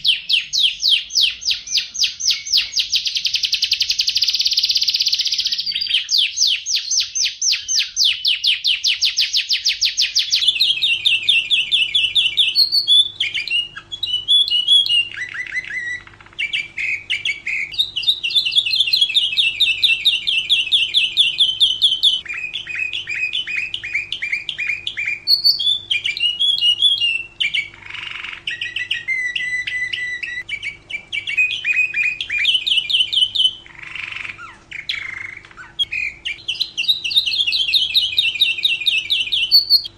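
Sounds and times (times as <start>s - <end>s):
canary singing trills: 0.0s - 39.9s
faint steady hum: 0.0s - 39.9s.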